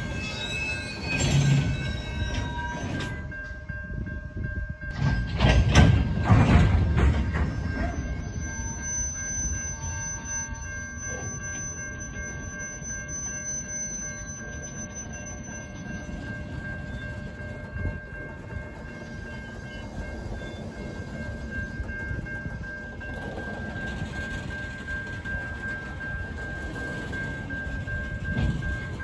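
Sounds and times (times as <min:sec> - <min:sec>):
wheels rumbling on rail: 0:00.0 - 0:29.0
thin high tone: 0:07.8 - 0:17.1.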